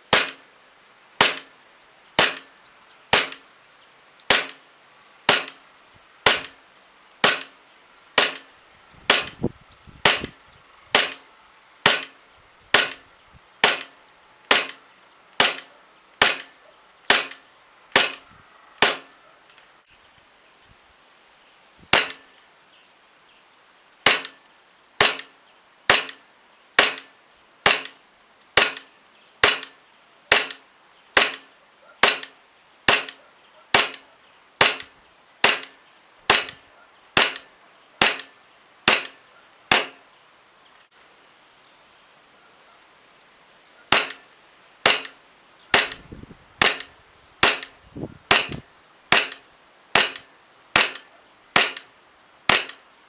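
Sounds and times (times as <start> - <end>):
airsoft pistol shots: 1.2 - 1.5, 2.2 - 2.5, 3.1 - 3.4, 4.3 - 4.6, 5.3 - 5.6, 6.3 - 6.6, 7.2 - 7.5, 8.2 - 8.5, 9.1 - 9.4, 10.0 - 11.2, 11.8 - 13.0, 13.6 - 14.8, 15.4 - 17.4, 18.0 - 18.2, 18.8 - 19.1, 21.9 - 22.2, 24.1 - 24.4, 25.0 - 25.3, 26.8 - 27.1, 27.7 - 28.0, 28.6 - 30.6, 31.2 - 34.0, 34.6 - 35.7, 36.3 - 36.6, 37.2 - 38.3, 38.9 - 40.0, 43.9 - 44.2, 44.8 - 49.4, 50.0 - 51.9, 52.5 - 52.8.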